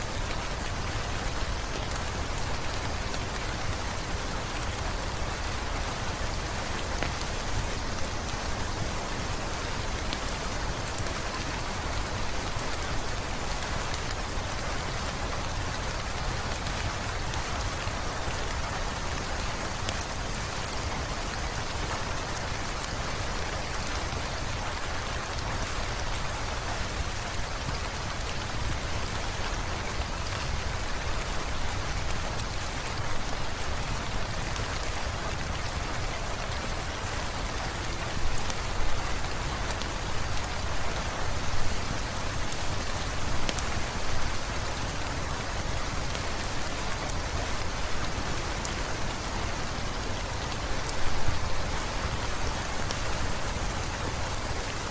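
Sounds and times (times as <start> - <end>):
rain on hard surfaces: 0.0 - 54.9
raindrop ticks: 34.2 - 47.8.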